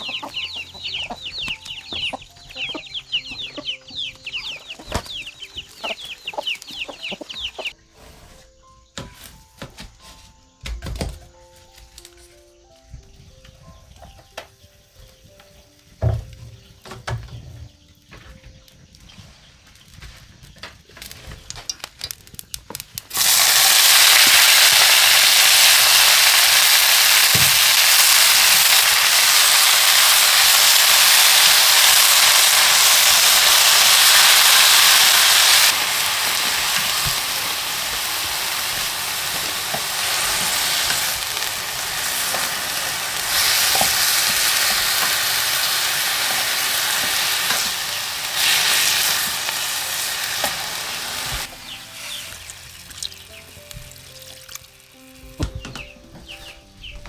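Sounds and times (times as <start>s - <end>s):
food frying in hot oil: 23.1s - 51.5s.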